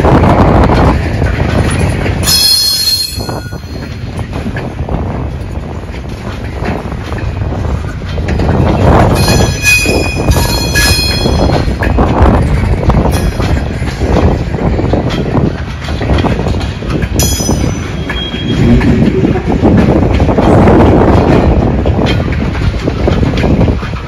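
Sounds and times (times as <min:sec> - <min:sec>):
train wheels rumbling on rails: 0:00.0 - 0:24.0
metallic wheel squeal: 0:02.2 - 0:04.0, 0:09.1 - 0:11.7, 0:17.2 - 0:19.4.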